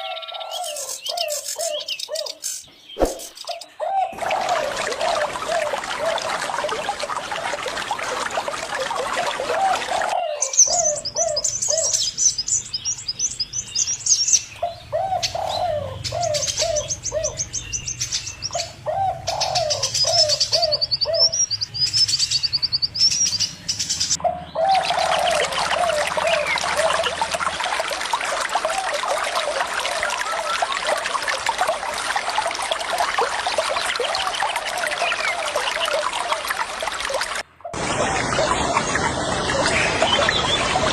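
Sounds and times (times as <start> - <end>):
small birds chirping: 0.0 - 6.8, 9.0 - 27.4
dove cooing: 3.8 - 6.9, 14.6 - 17.4, 18.8 - 21.3, 24.2 - 27.3
running water hiss: 4.2 - 10.1.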